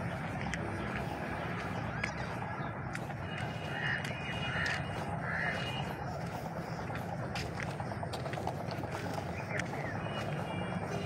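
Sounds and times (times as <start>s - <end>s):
steady low rumble: 0.0s - 11.0s
bird calling: 1.8s - 7.0s.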